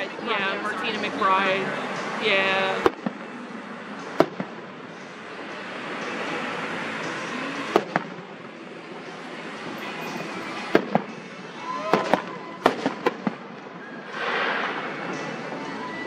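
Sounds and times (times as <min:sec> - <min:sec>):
fireworks bursting: 0:04.1 - 0:04.6, 0:10.6 - 0:15.5.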